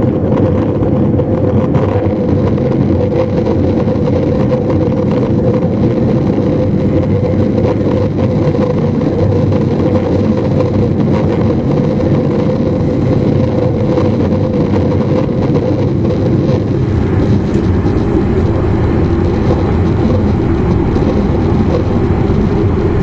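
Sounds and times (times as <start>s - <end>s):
electric train running rumble: 0.0s - 23.0s
train motor hum: 2.1s - 20.0s.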